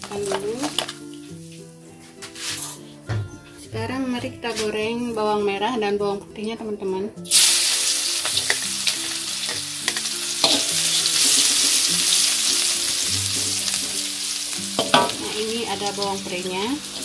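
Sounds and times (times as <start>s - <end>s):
shallots sizzling in hot oil: 0.0s - 2.8s, 7.2s - 17.0s
metal spatula scraping wok: 2.2s - 2.9s, 8.1s - 17.0s.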